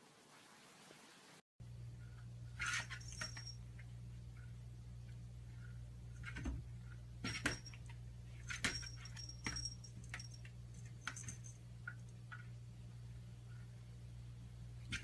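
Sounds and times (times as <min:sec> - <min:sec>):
steady low hum: 0:01.6 - 0:15.0
light metallic jingling: 0:02.6 - 0:03.7, 0:07.3 - 0:12.2.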